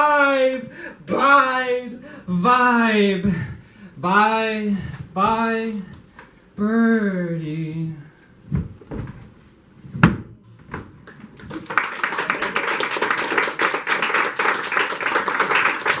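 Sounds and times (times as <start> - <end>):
audience clapping: 11.0 - 16.0.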